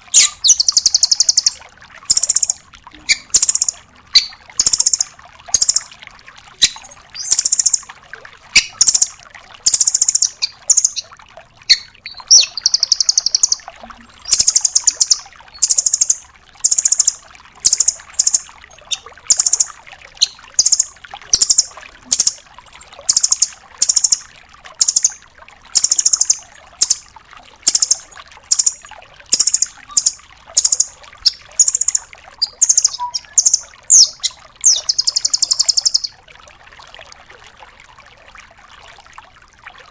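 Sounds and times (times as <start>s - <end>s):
bird high-pitched rattling trills: 0.1s - 5.9s, 6.6s - 7.8s, 9.7s - 11.0s, 11.7s - 22.4s, 23.1s - 24.2s, 24.8s - 25.2s, 25.8s - 27.0s, 27.7s - 36.1s.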